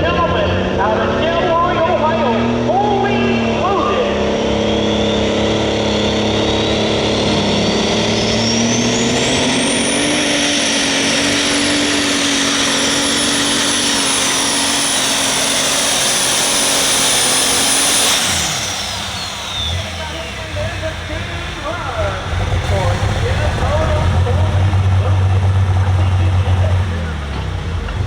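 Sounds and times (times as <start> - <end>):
tractor engine at full power: 0.0 - 28.0
high turbo whistle: 4.8 - 21.8.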